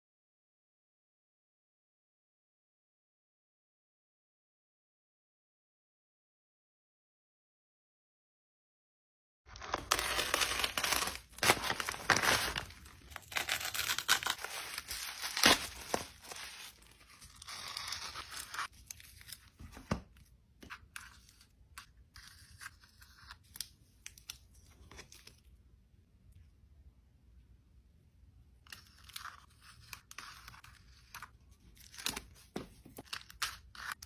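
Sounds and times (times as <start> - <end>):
packaging torn and crinkled: 9.5 - 19.6.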